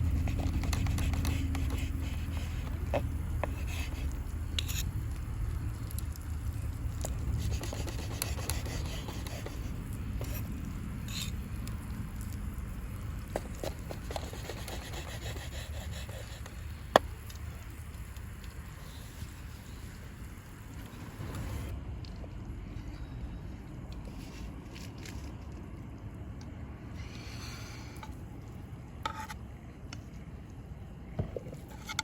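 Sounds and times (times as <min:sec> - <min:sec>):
steady low rumble: 0:00.0 - 0:14.1, 0:14.9 - 0:32.0
light scraping: 0:29.0 - 0:29.4.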